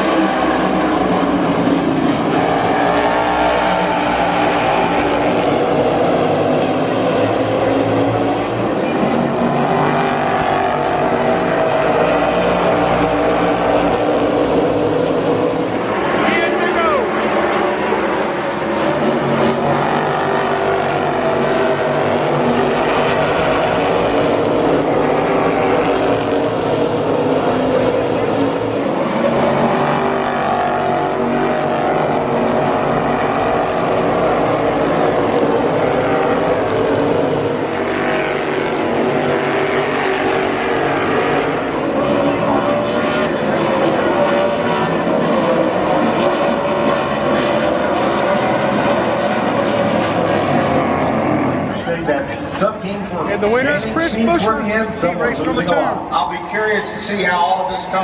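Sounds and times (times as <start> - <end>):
race car engines droning: 0.0 - 58.0.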